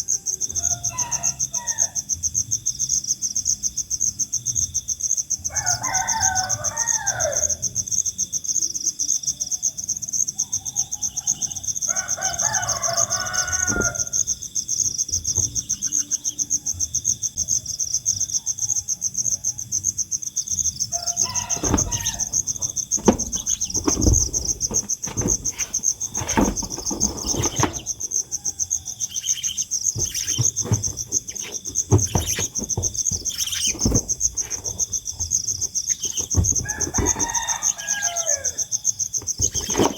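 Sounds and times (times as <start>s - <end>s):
crowing calls: 0.0s - 2.2s, 5.4s - 7.8s, 10.5s - 39.9s
insects chirring: 0.0s - 39.9s
knocks and rustles: 12.4s - 14.3s, 15.1s - 16.0s, 20.9s - 39.9s.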